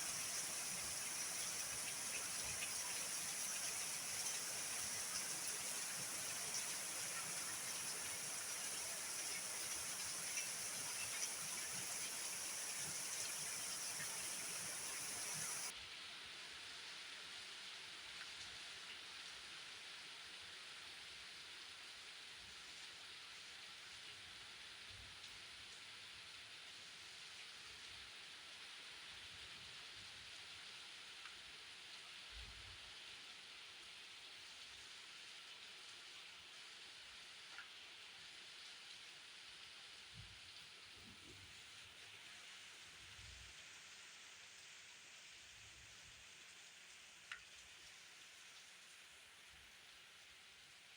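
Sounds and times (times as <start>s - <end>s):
rain falling: 0.0s - 15.7s.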